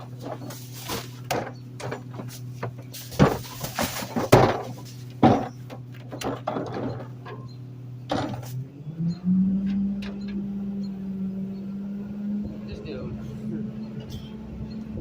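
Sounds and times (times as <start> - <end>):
trash bags and cans thudding: 0.0 - 7.1
garbage truck engine idling: 0.0 - 15.0.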